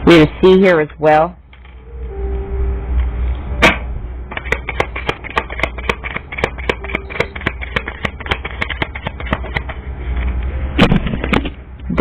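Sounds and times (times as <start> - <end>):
low hum: 1.3 - 12.0
card snap: 3.6 - 9.8
cards shuffling clicks: 4.3 - 11.5.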